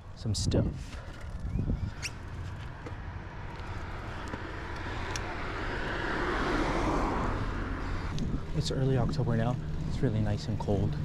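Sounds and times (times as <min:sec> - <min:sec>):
wind rumble on microphone: 0:00.2 - 0:03.4, 0:06.2 - 0:11.0
car approaching on road: 0:01.2 - 0:11.0.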